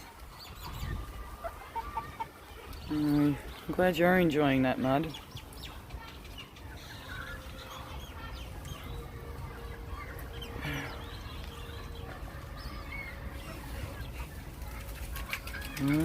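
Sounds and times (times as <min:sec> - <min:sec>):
ducks squawking: 0:00.0 - 0:03.5, 0:05.1 - 0:16.0
chickens clucking: 0:00.0 - 0:16.0.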